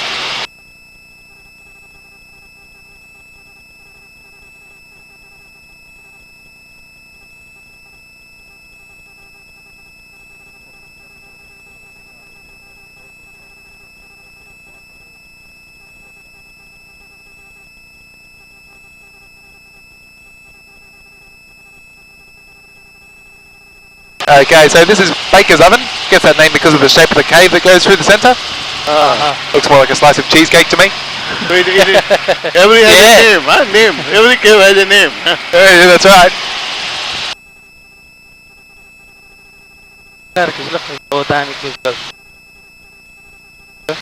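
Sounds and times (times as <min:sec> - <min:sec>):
electronic hum and whine: 0:00.0 - 0:44.0.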